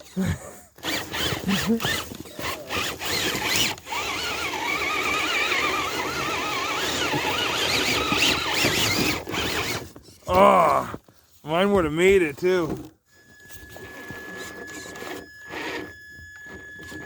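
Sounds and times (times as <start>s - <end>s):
electric motor whine: 0.8s - 9.8s, 13.2s - 17.0s
tires churning snow: 0.9s - 9.7s.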